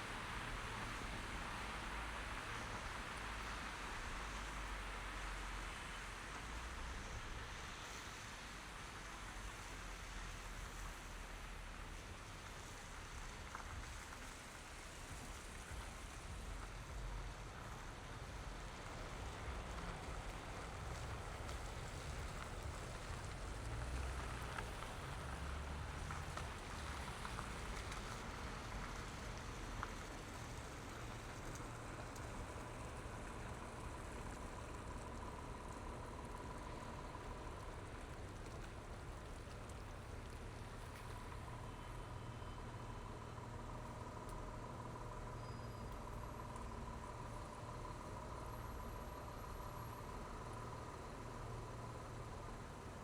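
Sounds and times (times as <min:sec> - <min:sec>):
tyre hiss on wet road: 0:00.0 - 0:42.2
faint steady tone: 0:28.7 - 0:53.0.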